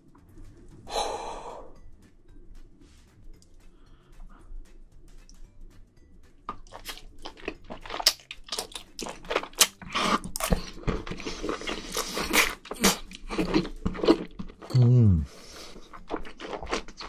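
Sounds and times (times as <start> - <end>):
person chewing and smacking: 6.4 - 14.8, 15.4 - 17.0.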